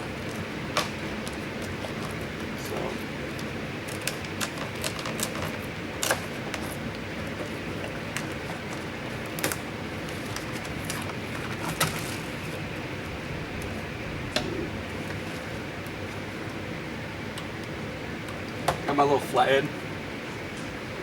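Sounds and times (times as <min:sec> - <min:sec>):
shop fans hissing: 0:00.0 - 0:21.0.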